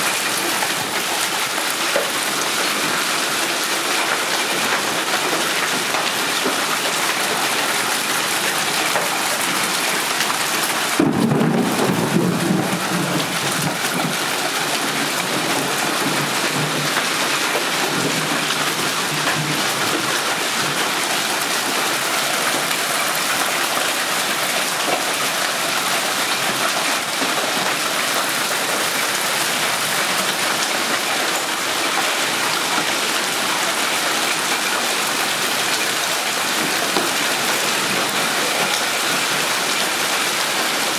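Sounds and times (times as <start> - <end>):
hail and rain pelting down: 0.0 - 40.9
thunder rumbling: 5.0 - 20.9.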